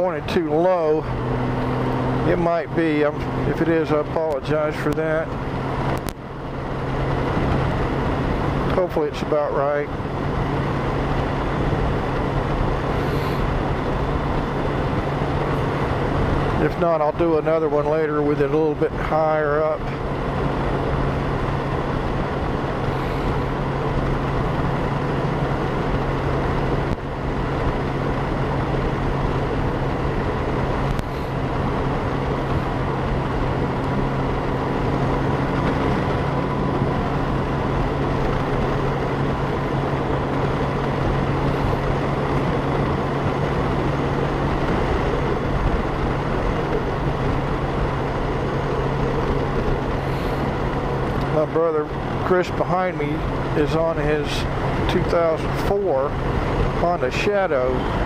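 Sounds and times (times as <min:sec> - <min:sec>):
motorcycle engine hum: 0:00.0 - 0:58.0
wind and road rush: 0:00.0 - 0:58.0.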